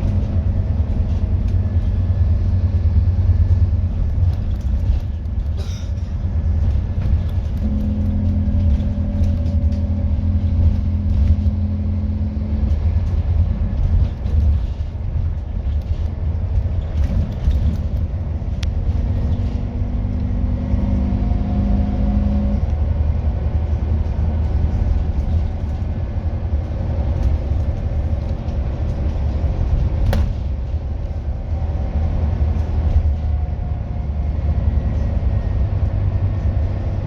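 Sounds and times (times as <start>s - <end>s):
bus engine rumbling: 0.0s - 37.0s
small rattles and clicks: 3.4s - 9.8s, 12.6s - 19.6s.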